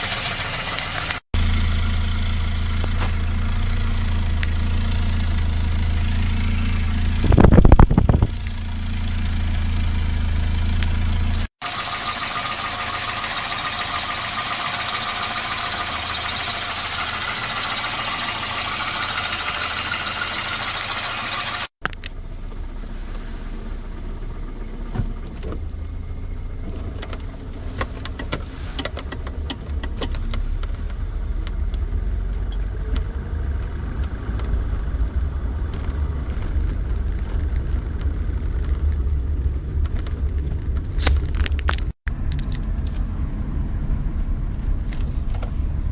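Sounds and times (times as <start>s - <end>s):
car engine running: 0.0s - 45.9s
engine knocking: 11.3s - 21.7s.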